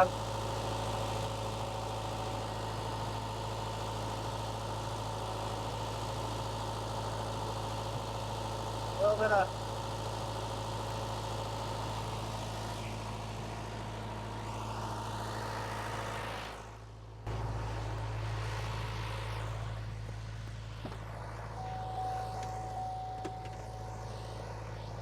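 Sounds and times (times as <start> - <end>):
diesel engine running: 0.0 - 25.0
steady high whine: 10.8 - 25.0.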